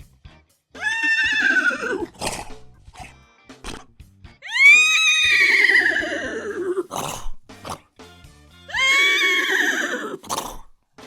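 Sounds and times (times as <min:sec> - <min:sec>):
man imitating horse whinny: 0:00.8 - 0:02.4, 0:04.4 - 0:07.8, 0:08.7 - 0:10.7.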